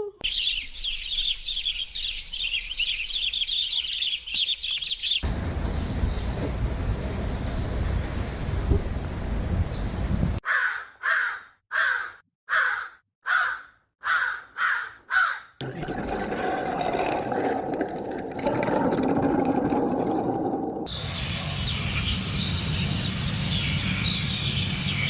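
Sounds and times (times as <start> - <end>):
small birds chirping: 0.0 - 10.4, 20.9 - 25.0
large bird cawing: 10.4 - 15.6.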